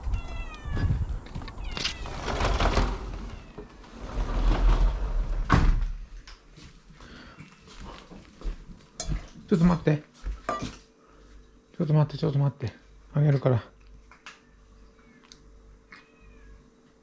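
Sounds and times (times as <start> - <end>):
cat meowing: 0.0 - 2.1, 3.2 - 3.7, 15.0 - 16.6.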